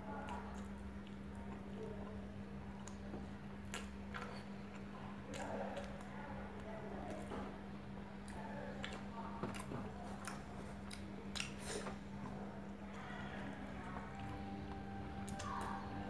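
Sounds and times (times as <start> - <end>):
steady low hum: 0.0 - 16.0
wet chewing smacks: 2.8 - 7.4, 8.2 - 12.0.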